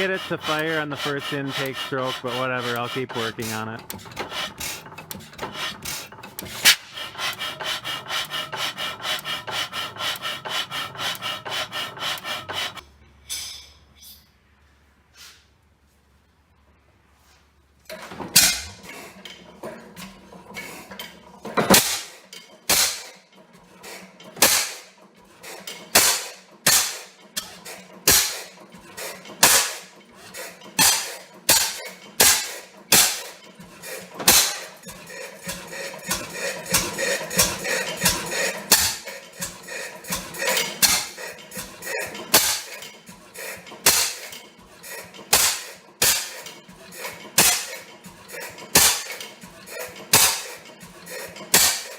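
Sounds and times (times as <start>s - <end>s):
low mechanical hum: 0.0s - 13.2s.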